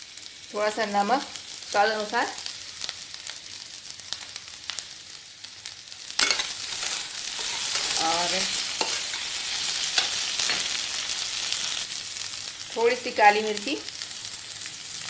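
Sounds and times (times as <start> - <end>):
food sizzling in oil: 0.0 - 15.0
spatula scraping pan: 6.2 - 10.9.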